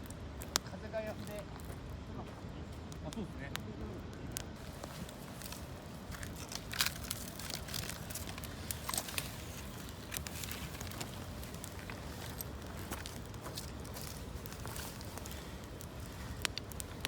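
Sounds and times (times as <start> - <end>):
campfire crackling: 0.0 - 17.0
low background rumble: 3.6 - 17.0.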